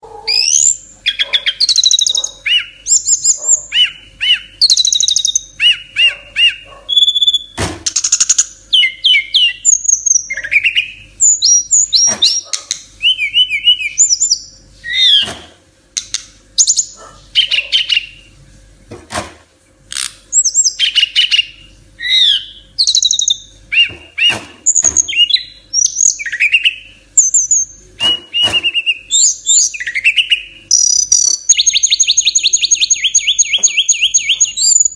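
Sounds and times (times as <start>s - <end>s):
songbird singing: 0.0s - 18.4s, 20.3s - 34.9s
sharp clicks: 16.0s - 16.3s.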